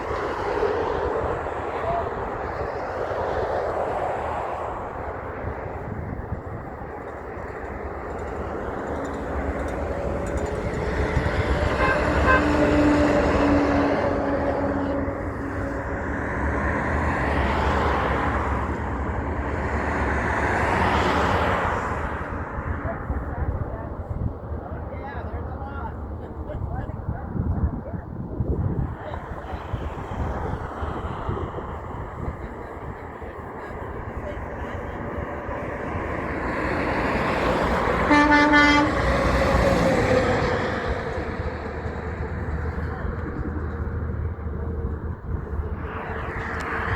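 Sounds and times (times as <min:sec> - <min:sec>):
truck engine rumble: 0:00.0 - 0:46.9
truck horn blast: 0:10.1 - 0:15.9, 0:37.7 - 0:40.4.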